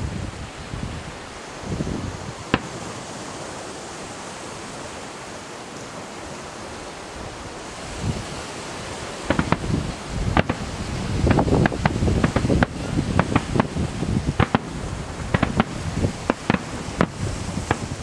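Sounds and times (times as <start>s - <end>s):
fireworks bangs and cracks: 2.4s - 3.1s, 9.3s - 18.0s
steady rushing background: 9.2s - 18.0s.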